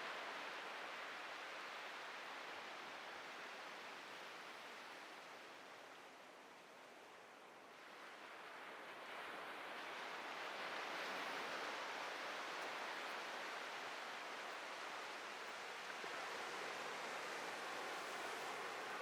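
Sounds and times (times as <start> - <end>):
surf washing onto a beach: 7.9 - 19.0.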